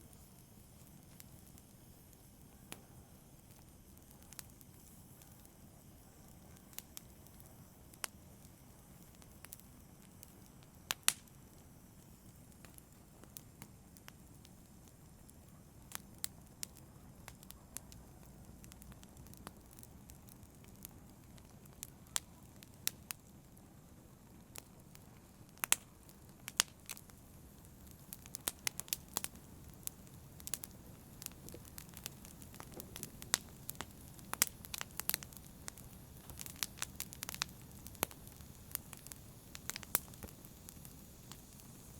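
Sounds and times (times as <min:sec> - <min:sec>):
wood crackling and popping: 0:00.0 - 0:02.8, 0:03.4 - 0:41.9
hiss of flame: 0:00.0 - 0:41.9.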